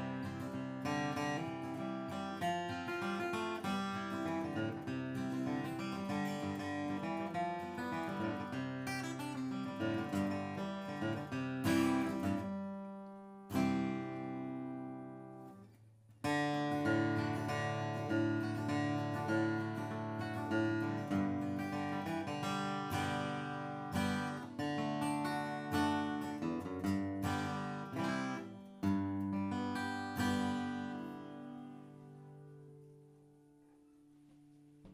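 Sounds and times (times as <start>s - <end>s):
acoustic guitar flatpicked: 0.0s - 34.9s.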